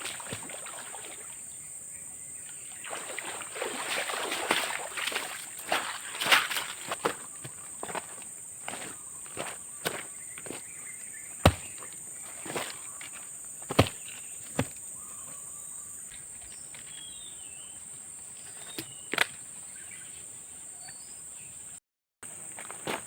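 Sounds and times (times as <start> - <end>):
faint bird chirps: 14.0 - 21.8.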